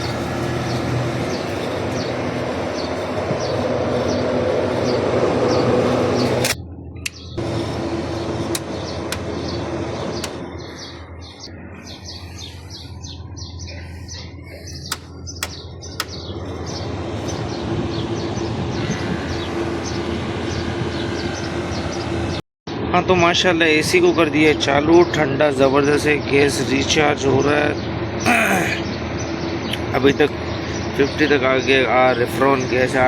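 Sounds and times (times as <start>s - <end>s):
birds chirping: 0.0s - 22.4s, 27.4s - 33.0s
mechanical hum: 0.0s - 22.4s
sharp clicks: 8.5s - 9.4s, 10.2s - 10.4s, 14.8s - 16.2s.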